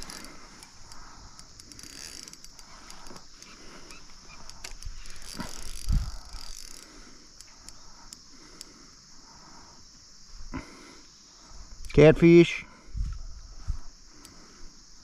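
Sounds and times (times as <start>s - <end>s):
fishing reel clicking: 0.0s - 8.2s.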